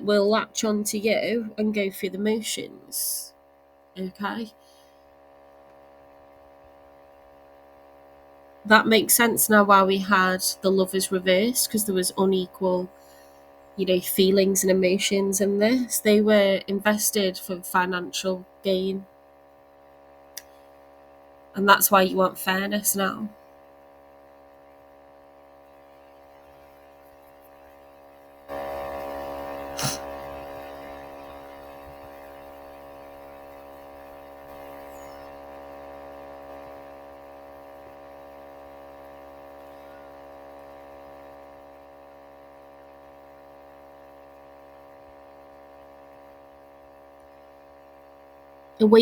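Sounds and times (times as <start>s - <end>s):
electrical mains hum: 0.0s - 49.0s
click: 20.4s - 20.6s.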